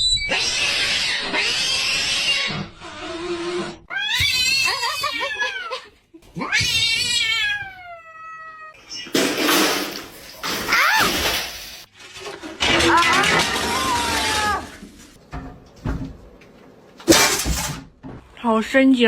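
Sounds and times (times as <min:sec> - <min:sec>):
cat caterwauling: 0:00.2 - 0:05.8, 0:06.4 - 0:08.8.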